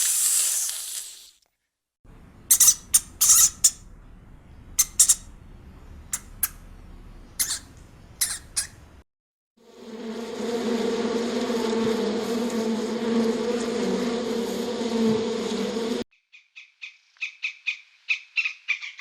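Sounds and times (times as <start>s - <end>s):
steady buzz: 2.1s - 9.0s, 9.6s - 16.0s
short sharp animal calls: 7.4s - 8.8s.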